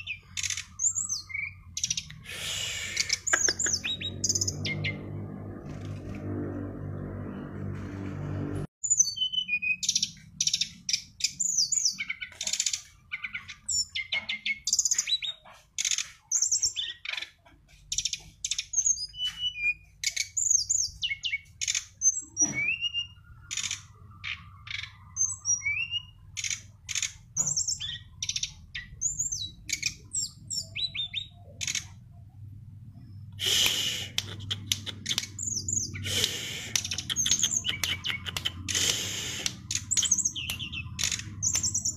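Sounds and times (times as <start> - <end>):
songbird singing: 0.0 - 5.8, 8.8 - 41.9.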